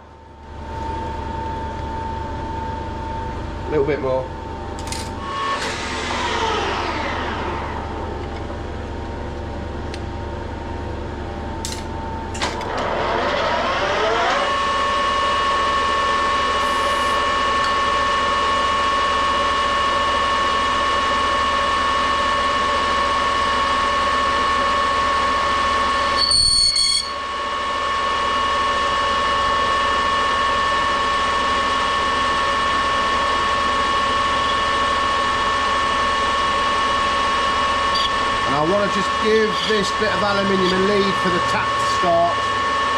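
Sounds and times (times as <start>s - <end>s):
metal lathe whining: 5.2s - 9.0s, 12.4s - 28.0s, 28.6s - 42.9s.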